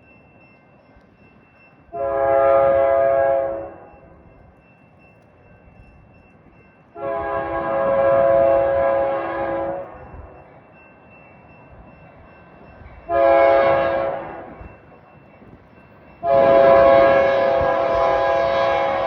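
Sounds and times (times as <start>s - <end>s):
train rumbling: 0.0s - 19.0s
locomotive air horn blasts: 2.0s - 3.8s, 7.0s - 10.0s, 13.1s - 14.6s, 16.2s - 19.0s.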